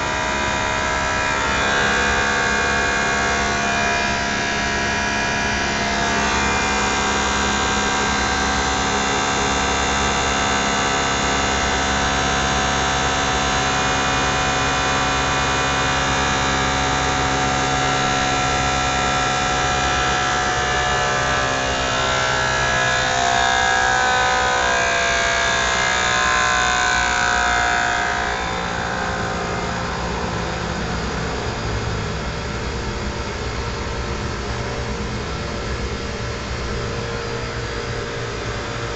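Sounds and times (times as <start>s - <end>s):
blower motor whining: 0.0s - 38.9s.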